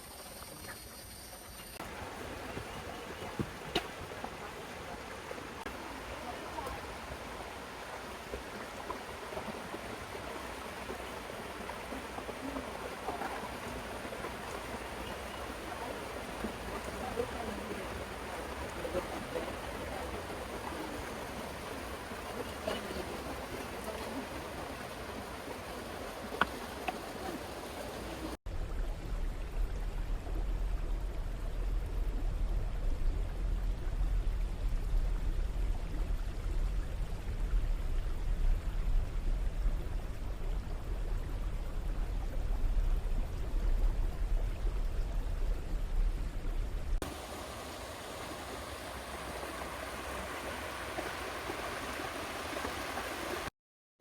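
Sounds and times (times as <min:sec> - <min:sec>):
water rushing over rocks: 0:01.8 - 0:53.5.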